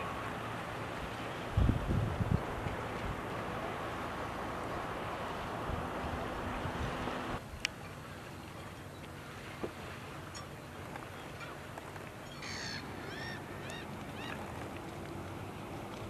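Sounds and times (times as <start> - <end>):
bird calling: 12.2 - 14.6.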